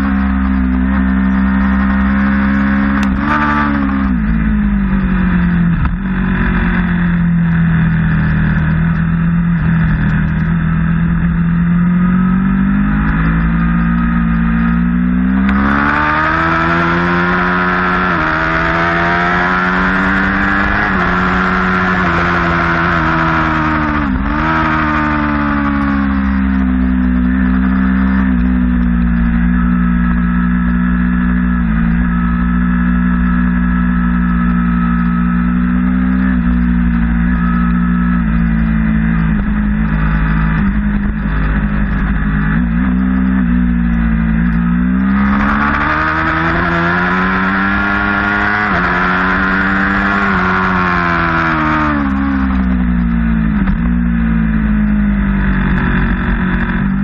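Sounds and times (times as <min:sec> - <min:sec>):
low wind rush: 0:00.0 - 0:33.8
motorcycle engine accelerating: 0:00.0 - 0:57.0.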